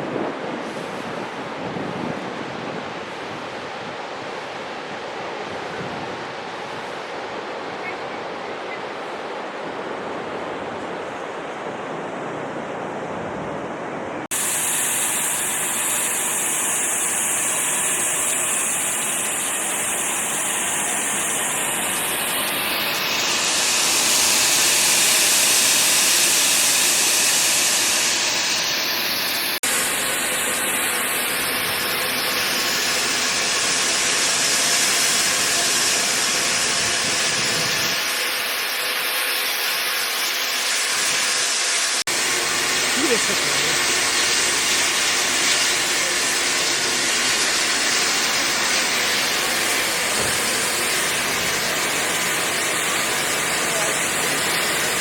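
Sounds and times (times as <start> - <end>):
steam hissing: 14.3 - 55.0.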